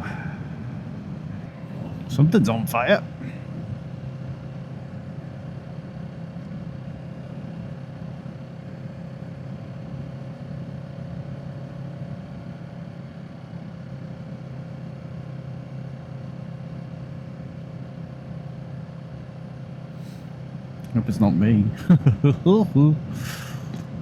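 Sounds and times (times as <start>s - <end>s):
wind and road noise: 0.0s - 4.7s.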